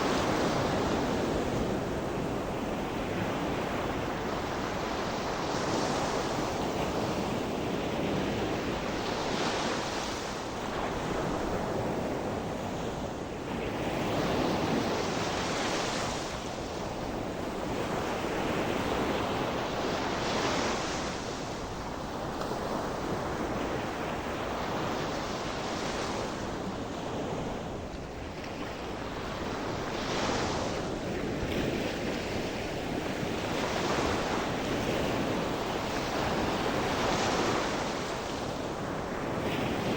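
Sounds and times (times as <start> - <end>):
wind on microphone: 0.0 - 39.9
waves breaking on shore: 8.2 - 39.9.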